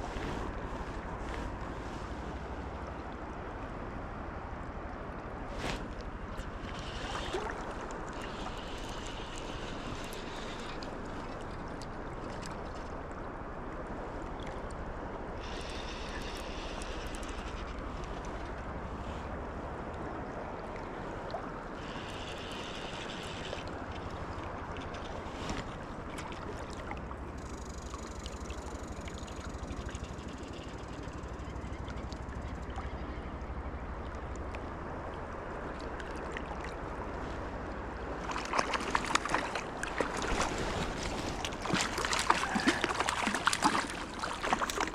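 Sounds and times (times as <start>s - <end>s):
river water rushing: 34.9s - 44.9s
splashing and clattering: 38.2s - 44.9s.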